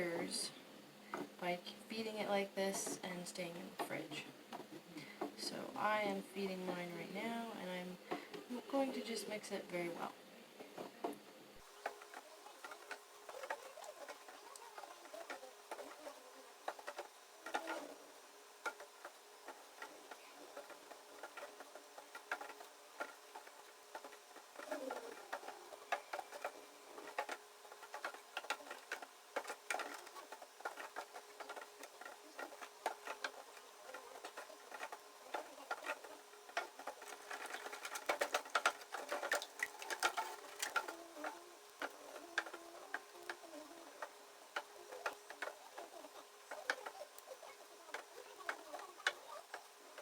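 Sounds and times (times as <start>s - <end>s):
wooden spoon knocking container: 11.6s - 50.0s.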